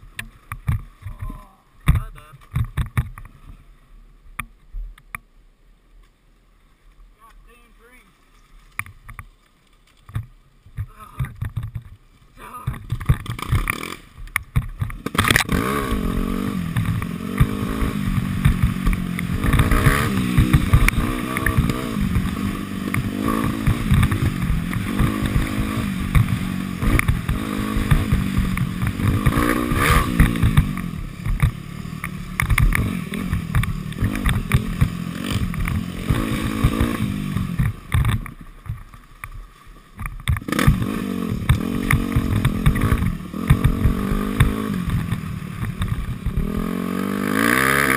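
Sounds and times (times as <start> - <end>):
bike knocks and rattles: 0.2 - 3.4, 8.7 - 39.4, 40.0 - 46.7
dirt bike engine revving: 12.4 - 38.9, 40.2 - 47.9.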